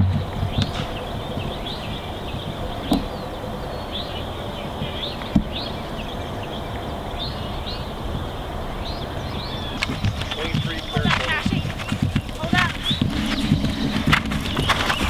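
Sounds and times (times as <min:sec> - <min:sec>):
low outdoor rumble: 0:00.0 - 0:15.0
songbirds chirping: 0:00.0 - 0:15.0
dull thuds: 0:09.8 - 0:15.0.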